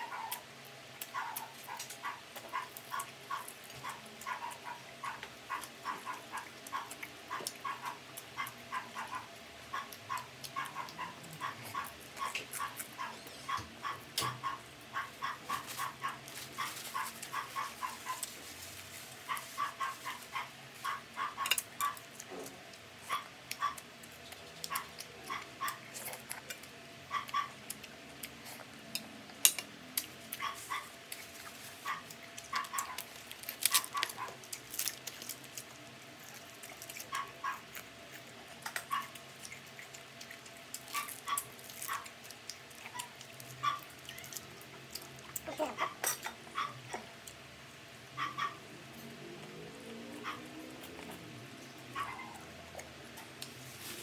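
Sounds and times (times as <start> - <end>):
crunchy chewing: 0.0 - 47.4.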